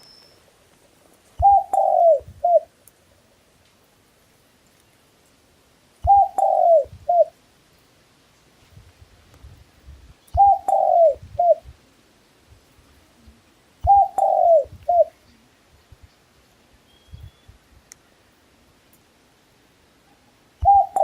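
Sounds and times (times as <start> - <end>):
dove cooing: 1.4 - 2.7, 6.0 - 7.4, 10.4 - 11.7, 13.8 - 15.2, 20.6 - 21.0.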